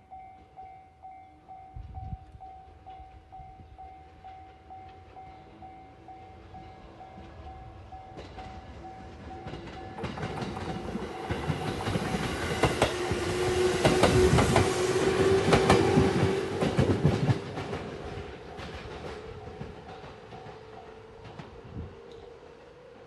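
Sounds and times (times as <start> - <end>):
train wheels clicking over rail joints: 8.1 - 22.3.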